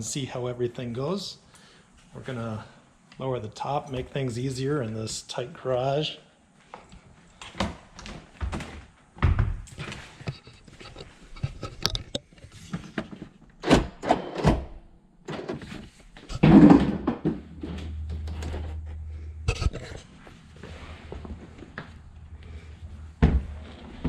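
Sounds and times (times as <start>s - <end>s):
steady low hum: 14.9s - 24.0s.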